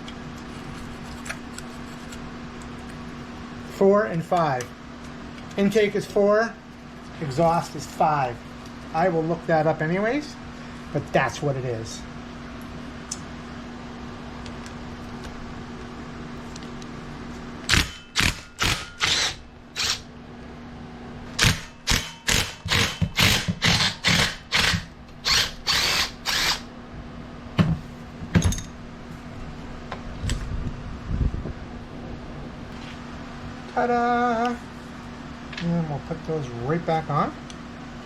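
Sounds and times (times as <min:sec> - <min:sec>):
faint steady hum: 0:00.0 - 0:38.0
power tool bursts on fasteners: 0:17.7 - 0:20.0, 0:21.4 - 0:26.7.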